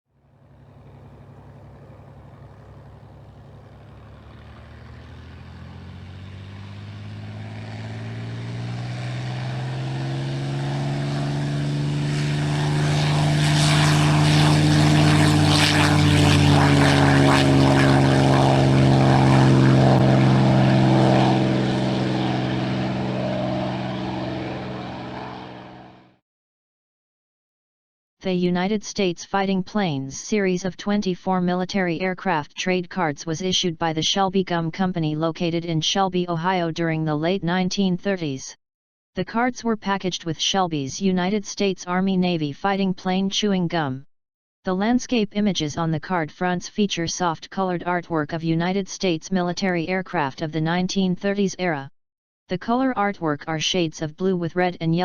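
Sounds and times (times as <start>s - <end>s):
propeller airplane engine passing: 0.1s - 26.2s.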